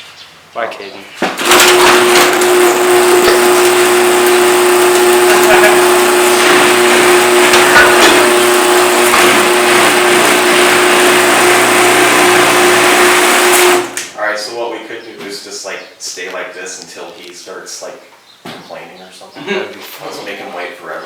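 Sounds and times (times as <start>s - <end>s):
garage door opener motor drone: 1.4s - 14.2s.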